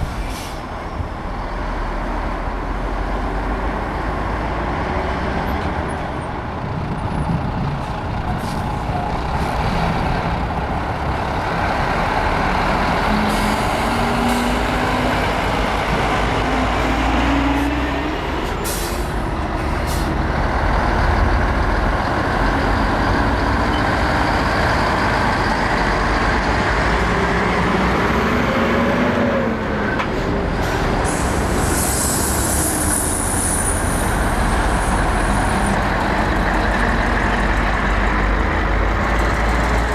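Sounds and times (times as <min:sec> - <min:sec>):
air brakes hissing: 0:00.0 - 0:00.7, 0:18.4 - 0:20.2, 0:30.6 - 0:34.1
diesel trucks pulling past: 0:00.0 - 0:39.9.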